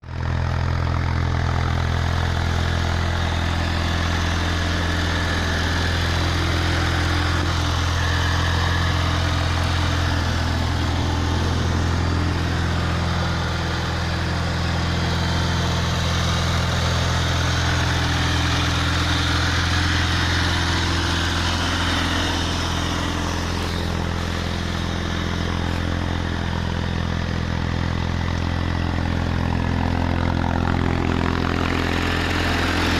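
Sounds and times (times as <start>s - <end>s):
quad bike engine idling: 0.0s - 32.9s.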